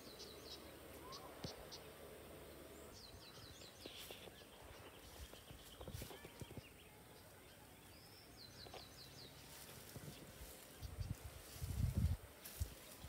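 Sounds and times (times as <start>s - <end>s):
small bird chirping: 2.7s - 12.1s.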